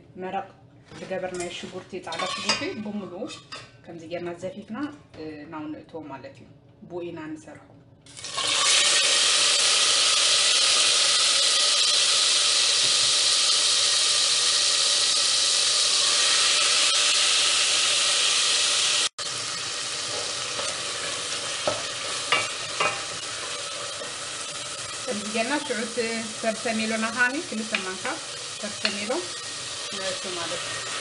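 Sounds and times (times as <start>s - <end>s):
food sizzling in hot oil: 8.1s - 31.0s.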